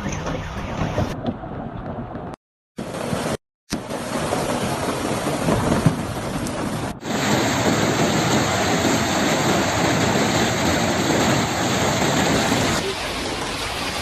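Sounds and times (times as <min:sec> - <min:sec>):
heavy rain hiss: 0:07.0 - 0:14.0.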